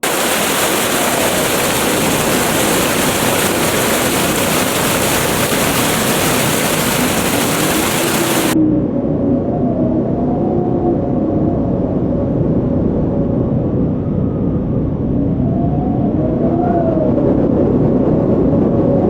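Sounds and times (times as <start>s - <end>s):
wind blowing through trees: 0.0s - 8.6s.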